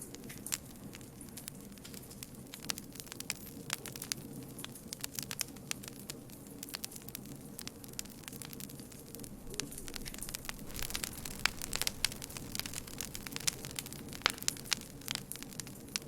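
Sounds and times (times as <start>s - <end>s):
campfire crackling and popping: 0.0s - 16.0s
low rumble of burning fire: 0.0s - 16.0s.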